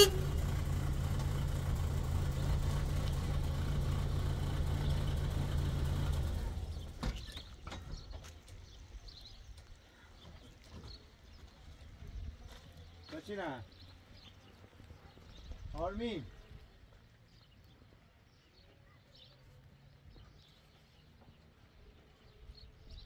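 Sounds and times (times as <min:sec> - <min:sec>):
vehicle engine running: 0:00.0 - 0:08.1.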